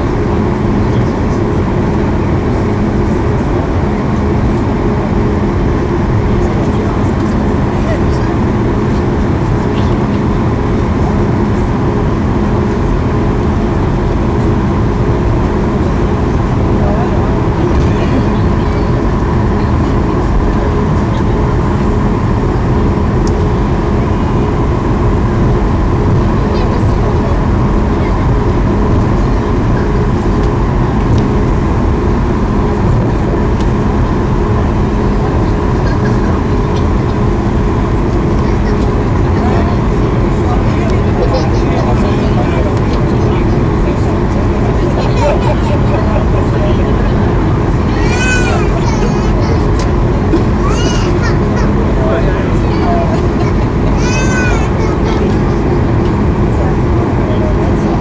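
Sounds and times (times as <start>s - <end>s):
jet cabin engine rumble: 0.0s - 58.0s
low hums: 0.0s - 58.0s.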